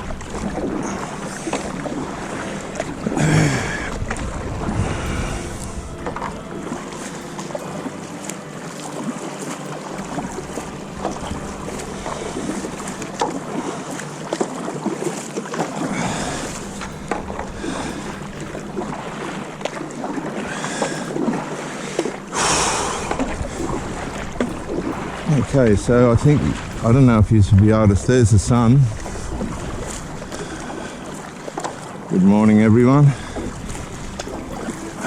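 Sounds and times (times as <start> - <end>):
water at shoreline: 0.0 - 35.0
wind: 0.0 - 35.0.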